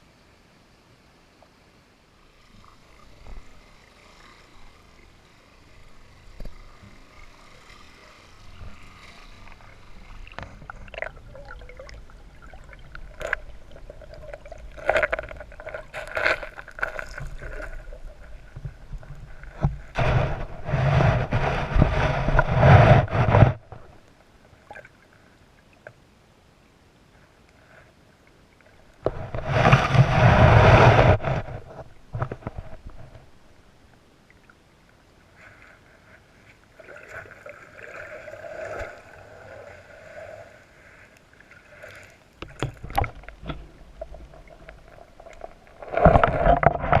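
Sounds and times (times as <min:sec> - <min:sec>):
creek water splashing: 0:04.4 - 0:23.3, 0:35.3 - 0:47.0.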